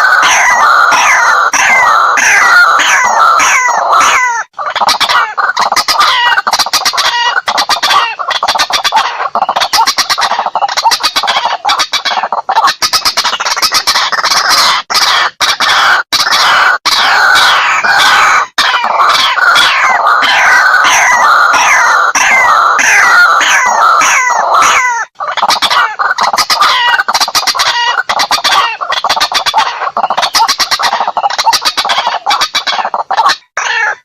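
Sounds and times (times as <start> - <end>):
waterhen croaking chatter: 0.0 - 34.0.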